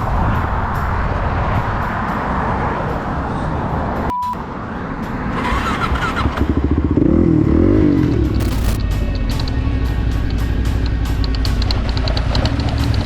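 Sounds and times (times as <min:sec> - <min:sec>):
rushing road noise: 0:00.0 - 0:13.0
short beep: 0:04.1 - 0:04.5
motorcycle engine revving: 0:05.1 - 0:13.0.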